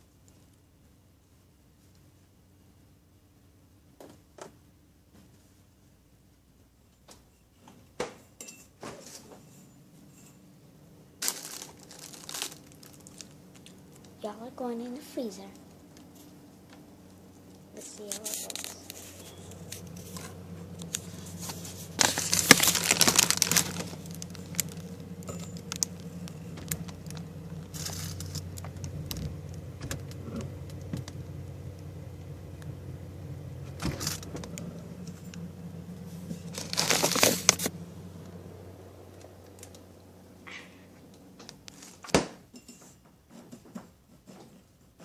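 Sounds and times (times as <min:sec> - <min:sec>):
low electrical hum: 0:00.0 - 0:45.0
small objects rattling and clinking: 0:11.2 - 0:13.8, 0:17.8 - 0:29.2, 0:36.4 - 0:37.7.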